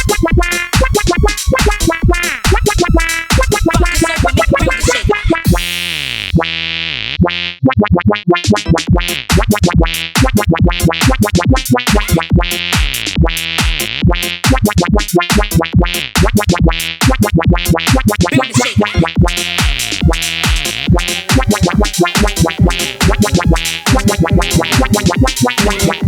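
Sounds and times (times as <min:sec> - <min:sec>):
synth chord sweeping: 0:00.0 - 0:06.2, 0:19.0 - 0:26.0
electronic dance music: 0:00.0 - 0:06.5, 0:07.7 - 0:26.0.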